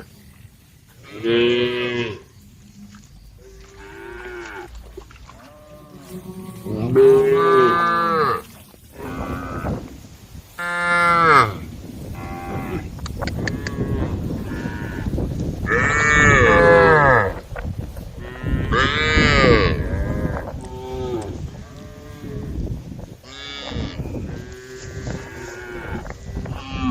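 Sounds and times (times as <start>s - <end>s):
cows mooing: 1.0s - 9.9s, 12.2s - 17.4s, 18.2s - 22.6s, 23.2s - 26.9s.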